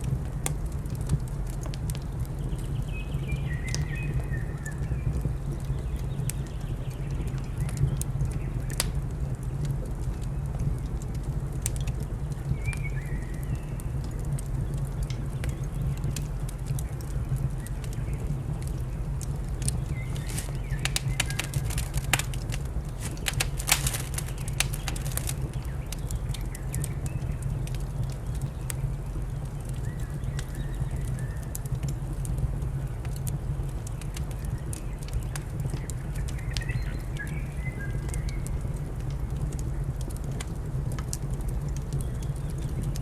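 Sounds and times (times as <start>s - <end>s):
wood fire crackling and popping: 0.0s - 43.0s.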